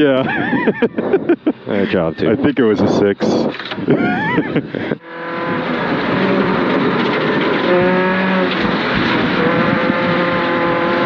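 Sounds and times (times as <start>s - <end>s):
road and tyre noise: 0.0s - 11.0s
rally car engine running hard: 3.6s - 11.0s.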